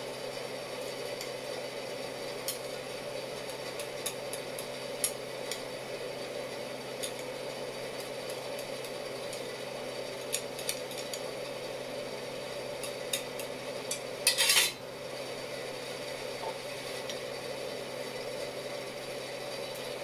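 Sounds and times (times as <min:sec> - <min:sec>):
steady hum: 0:00.0 - 0:20.0
utensils clinking on dishes: 0:13.9 - 0:14.8.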